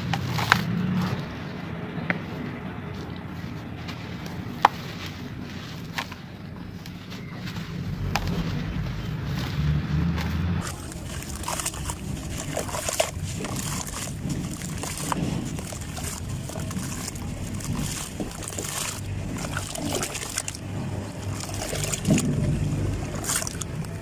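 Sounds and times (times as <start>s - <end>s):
dirt clumps crumbling: 0.0s - 24.0s
low rumble: 6.6s - 24.0s.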